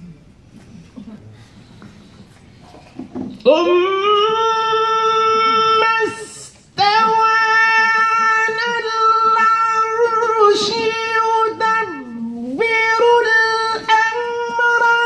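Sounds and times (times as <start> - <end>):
person chanting melodic recitation: 3.5 - 15.0.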